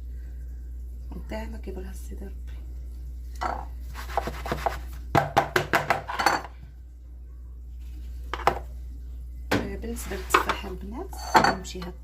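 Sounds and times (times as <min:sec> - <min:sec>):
utensil scraping and knocking bowl: 0:10.0 - 0:11.6.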